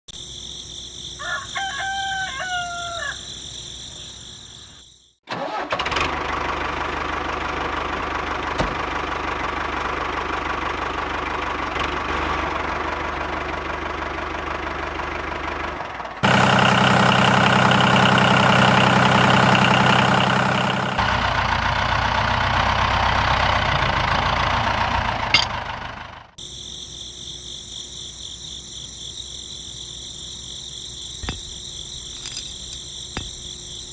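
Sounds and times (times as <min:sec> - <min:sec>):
insect chirr: 0:00.1 - 0:05.2, 0:26.4 - 0:33.9
rooster crowing: 0:01.2 - 0:03.4.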